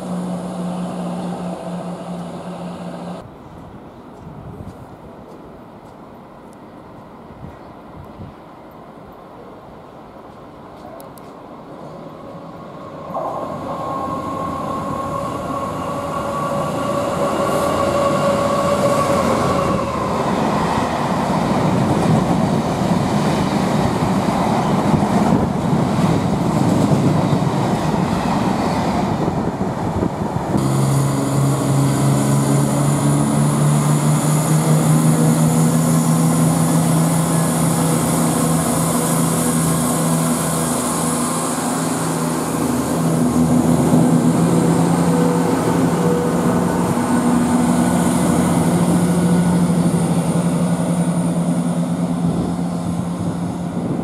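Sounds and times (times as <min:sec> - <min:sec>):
train diesel engines running: 0:00.0 - 0:54.0
two-note locomotive tone: 0:30.6 - 0:53.4.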